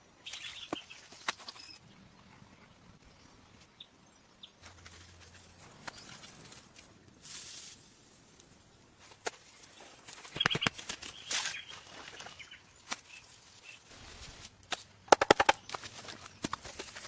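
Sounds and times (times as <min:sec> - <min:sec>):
sharp knocks and taps: 0:15.1 - 0:15.8.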